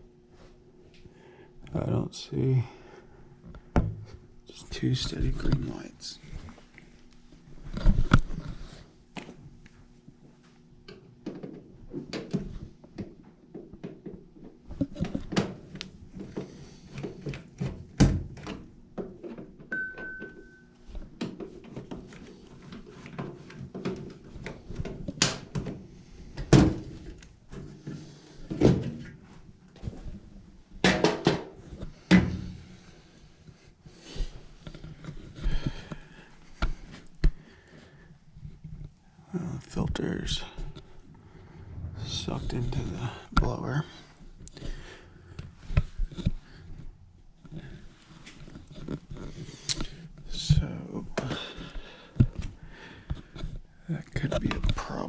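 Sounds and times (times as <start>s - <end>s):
steady low hum: 31.5s - 55.0s.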